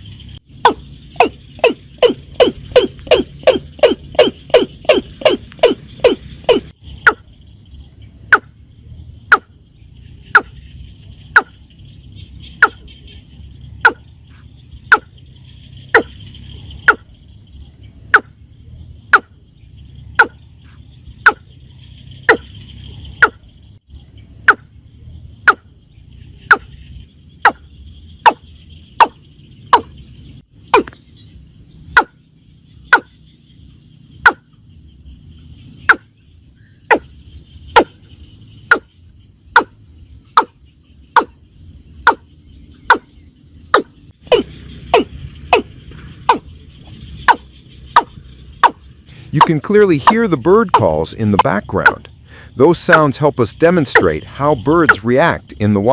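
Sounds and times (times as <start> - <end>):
bird calls: 0.0 - 55.9.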